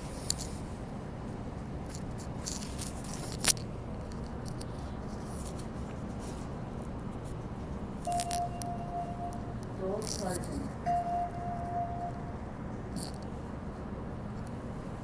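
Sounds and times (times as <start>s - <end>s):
train low hum: 0.0s - 15.0s
door warning tone: 8.1s - 12.6s.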